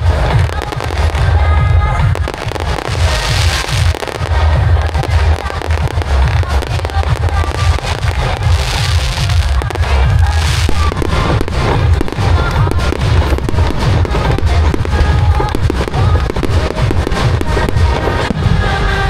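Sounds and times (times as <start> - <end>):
fireworks booming and crackling: 0.0 - 19.0
music playing: 0.0 - 19.0.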